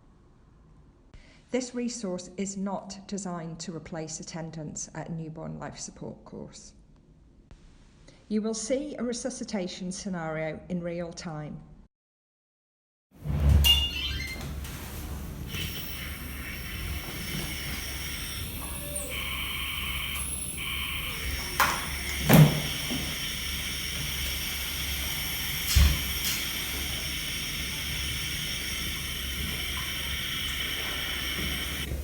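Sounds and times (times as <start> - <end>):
steady hiss: 14.4 - 32.0.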